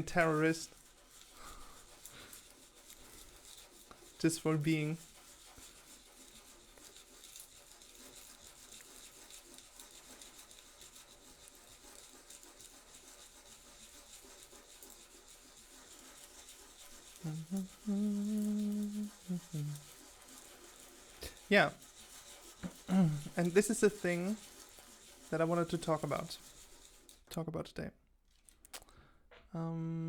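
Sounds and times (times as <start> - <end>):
person speaking: 0.0 - 0.7, 4.2 - 5.0, 17.2 - 19.8, 21.2 - 21.8, 22.6 - 24.4, 25.3 - 26.4, 27.3 - 28.0, 29.5 - 30.0
filing or sanding by hand: 0.0 - 27.3.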